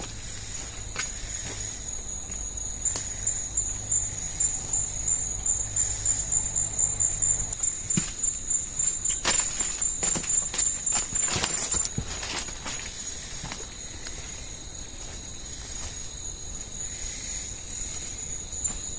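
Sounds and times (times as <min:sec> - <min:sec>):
low hum: 0:00.0 - 0:10.2
insects buzzing chorus: 0:00.0 - 0:18.9.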